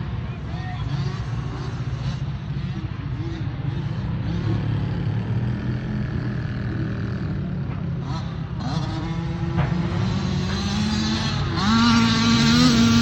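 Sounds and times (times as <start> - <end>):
dirt bike engine revving: 8.0 - 13.0.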